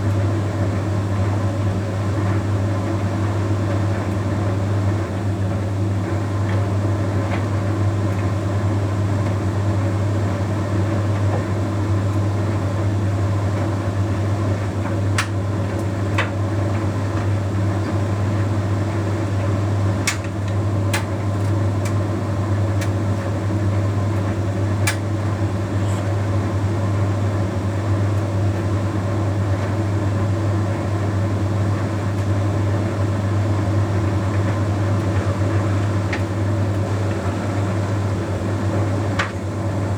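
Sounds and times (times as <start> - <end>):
tumble dryer humming: 18.1 - 39.9.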